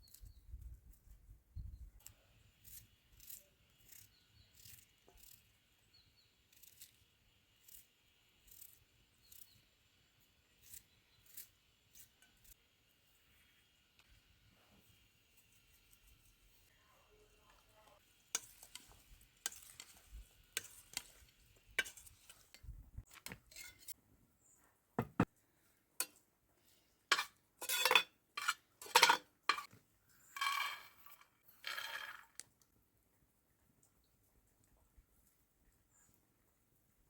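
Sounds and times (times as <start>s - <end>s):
scraping strokes on kitchenware: 2.0s - 9.8s, 10.4s - 12.7s, 17.9s - 24.0s, 27.1s - 31.3s
utensils clinking against dishes: 27.1s - 29.7s.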